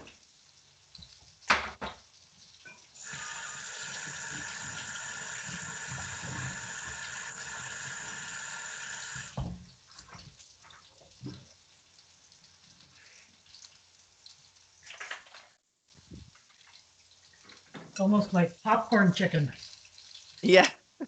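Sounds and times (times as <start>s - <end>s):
tap running into sink: 2.7s - 8.3s, 8.9s - 10.4s.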